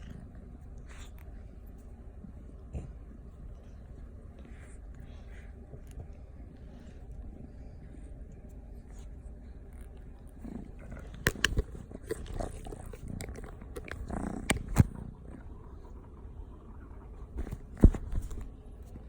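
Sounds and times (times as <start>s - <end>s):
kitten growling: 9.8s - 18.4s.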